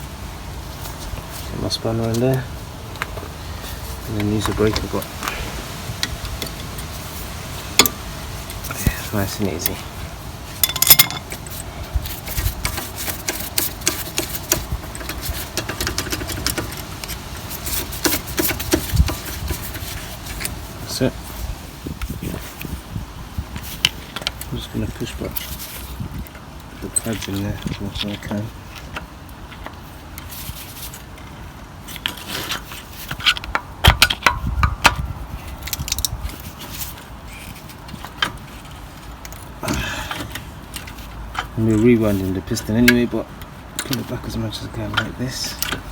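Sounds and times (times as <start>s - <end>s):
metal tools clinking: 10.6s - 20.6s.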